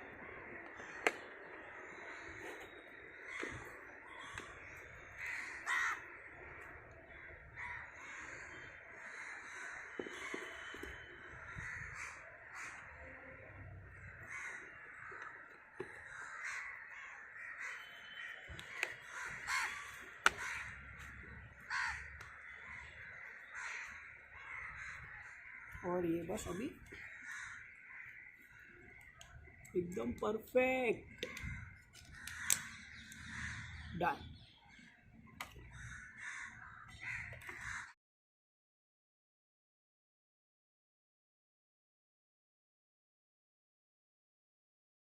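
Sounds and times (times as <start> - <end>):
birds calling harshly: 0.0 - 38.0.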